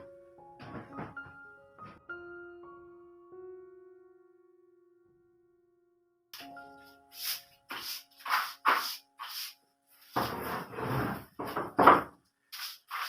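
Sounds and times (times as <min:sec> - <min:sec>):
brush scraping strokes: 0:06.4 - 0:11.3, 0:12.5 - 0:13.0.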